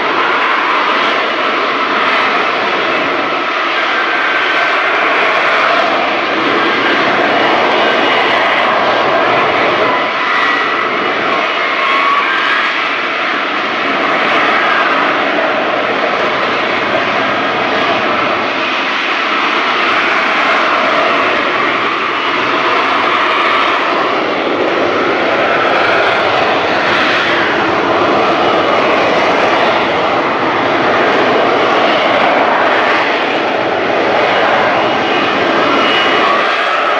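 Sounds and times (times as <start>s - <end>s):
jet engine running: 0.0s - 36.9s.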